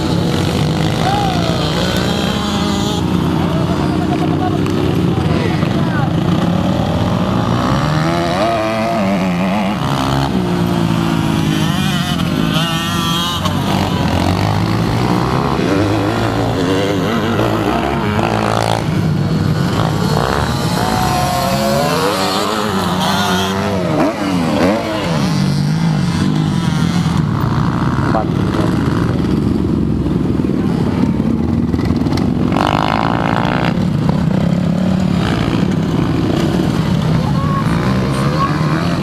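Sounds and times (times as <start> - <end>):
motocross bike engines revving: 0.0 - 39.0.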